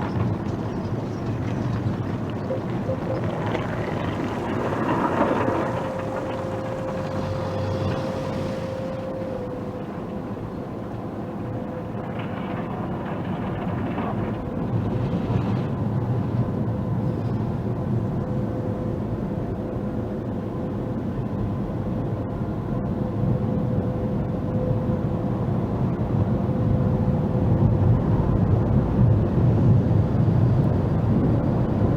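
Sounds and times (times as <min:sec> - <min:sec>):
car wash machinery rushing: 0:00.0 - 0:17.0
constant high whine: 0:00.0 - 0:31.9.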